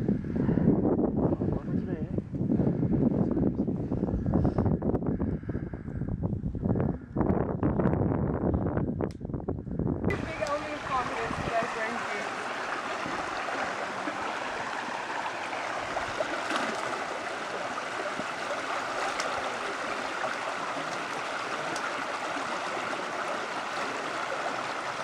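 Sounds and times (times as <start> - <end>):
stream flowing over rocks: 10.1 - 25.0.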